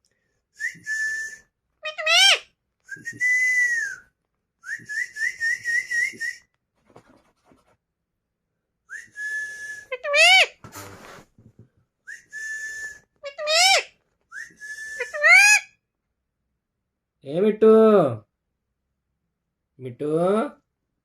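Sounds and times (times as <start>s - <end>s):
parrot whistling: 12.1s - 15.7s.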